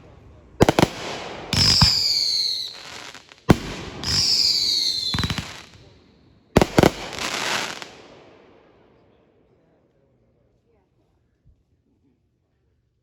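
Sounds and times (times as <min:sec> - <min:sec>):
firework bangs: 0:00.6 - 0:06.0, 0:06.6 - 0:08.7
whistling firework: 0:00.6 - 0:08.1.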